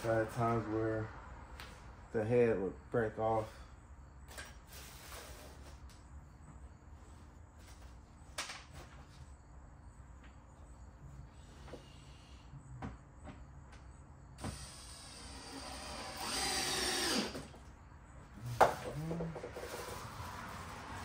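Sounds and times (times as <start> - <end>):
power drill driving a screw: 14.4 - 17.5.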